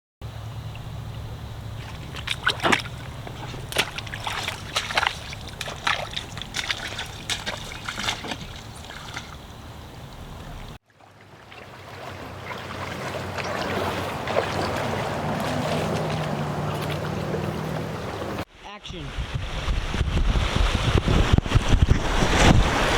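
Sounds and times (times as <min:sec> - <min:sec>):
steady low hum: 0:00.2 - 0:10.8
water splashing and sloshing: 0:00.4 - 0:22.9.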